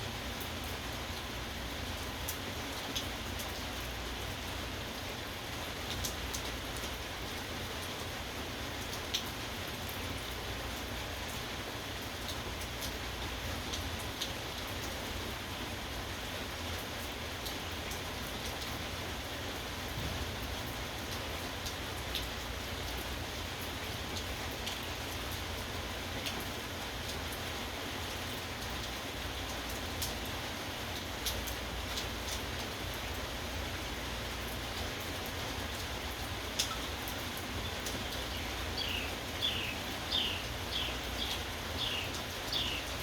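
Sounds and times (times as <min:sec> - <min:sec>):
rain pattering: 0:00.0 - 0:43.0.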